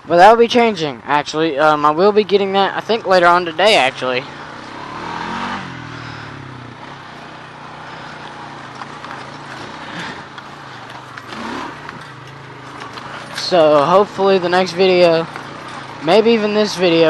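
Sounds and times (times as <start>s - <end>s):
small vehicle engine running: 0.0s - 17.0s.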